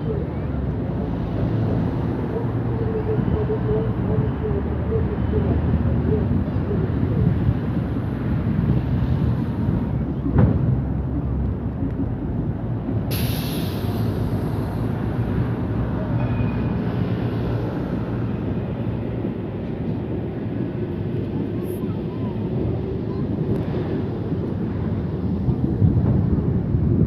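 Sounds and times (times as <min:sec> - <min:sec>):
low rumble of vehicles: 0:00.0 - 0:27.0
brief hiss: 0:13.1 - 0:14.6.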